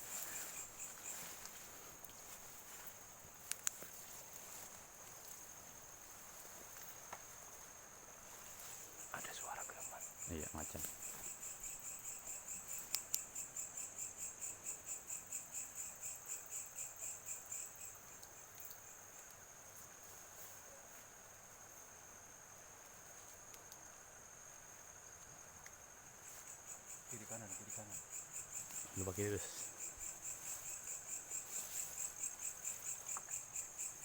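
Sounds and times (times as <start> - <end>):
insects buzzing in grass: 0.0 - 34.0.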